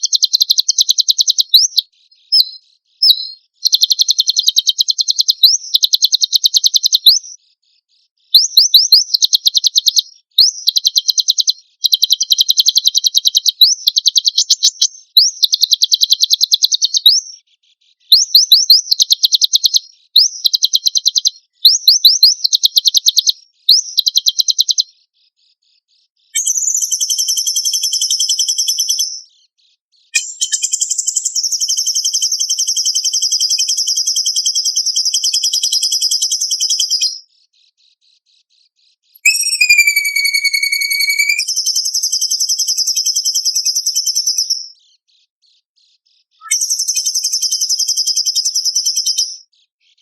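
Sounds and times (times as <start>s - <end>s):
buzzy high bird trill: 0.0s - 7.4s, 8.3s - 17.4s, 18.0s - 24.9s, 26.4s - 29.2s, 30.1s - 37.2s, 39.0s - 44.8s, 46.4s - 49.5s
songbird rattling trills: 0.0s - 7.4s, 8.3s - 17.4s, 18.1s - 24.8s, 30.1s - 37.1s, 39.2s - 44.6s.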